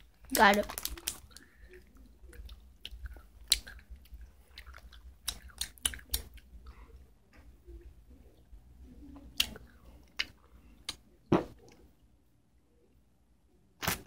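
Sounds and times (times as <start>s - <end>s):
chewing mouth clicks and smacks: 0.8s - 6.5s.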